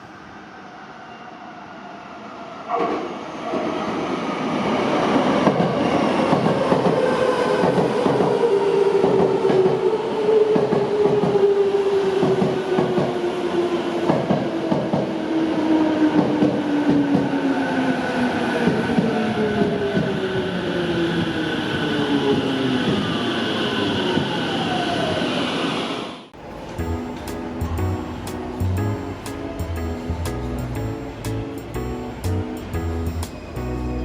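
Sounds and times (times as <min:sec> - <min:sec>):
train wheels clattering on rails: 0:05.2 - 0:09.9, 0:10.5 - 0:11.5, 0:12.2 - 0:13.2, 0:14.0 - 0:15.2.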